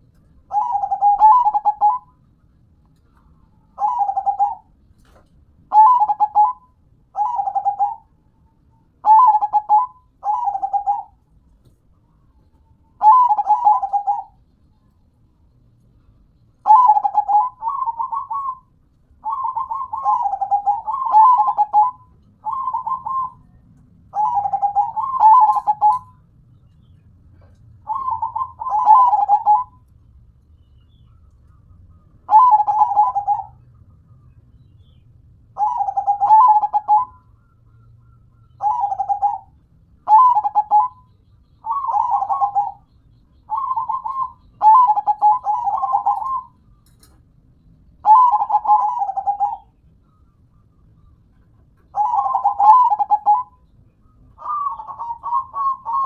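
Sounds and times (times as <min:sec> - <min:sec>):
dove cooing: 0:00.0 - 0:02.3, 0:03.2 - 0:08.2, 0:09.0 - 0:11.3, 0:11.9 - 0:14.5, 0:16.6 - 0:29.9, 0:31.0 - 0:33.9, 0:34.8 - 0:47.0, 0:48.0 - 0:50.2, 0:51.0 - 0:56.0.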